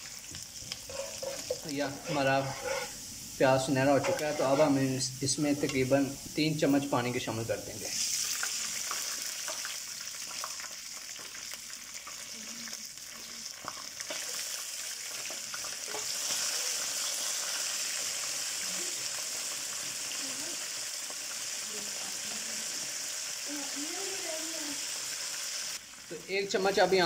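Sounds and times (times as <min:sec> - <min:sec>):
onions sizzling in oil: 0:00.0 - 0:27.0
spatula scraping pan: 0:00.7 - 0:06.2.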